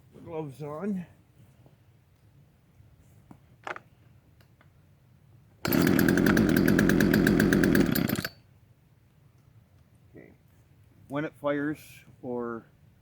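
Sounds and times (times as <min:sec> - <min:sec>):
chainsaw engine starting and running: 0:05.6 - 0:08.4.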